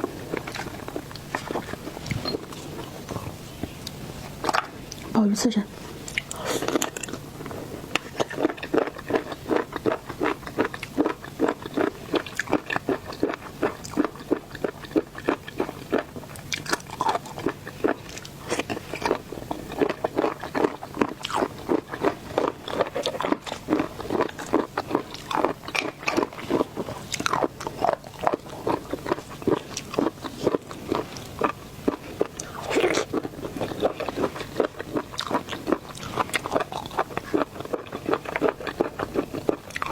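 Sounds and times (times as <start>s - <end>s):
mouth chewing crunchy seafood: 0.0s - 5.2s, 5.8s - 39.9s.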